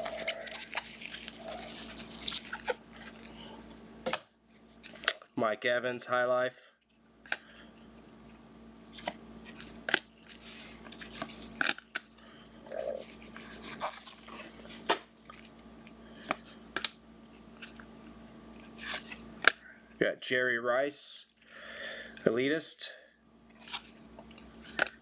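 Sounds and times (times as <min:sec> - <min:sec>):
trading cards clicking and sliding: 0:00.0 - 0:04.2.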